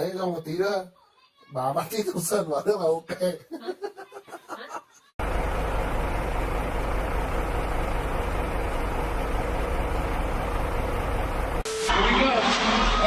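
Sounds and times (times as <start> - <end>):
vehicle engine and road noise: 5.2 - 11.6.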